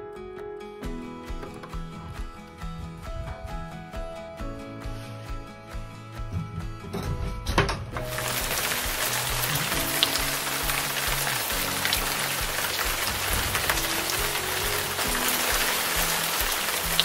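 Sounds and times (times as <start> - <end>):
soft background music: 0.0 - 17.0
steady rain hiss: 8.0 - 17.0
water drips ticking: 8.0 - 17.0.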